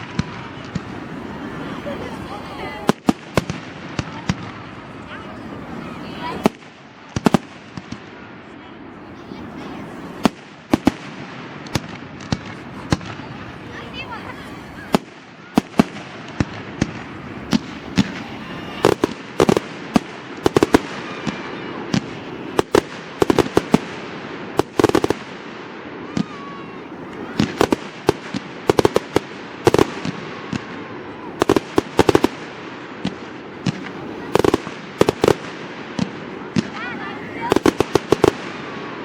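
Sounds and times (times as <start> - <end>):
faint firework whistles: 14.6 - 24.0
firework shells bursting: 27.0 - 36.8, 37.5 - 38.9.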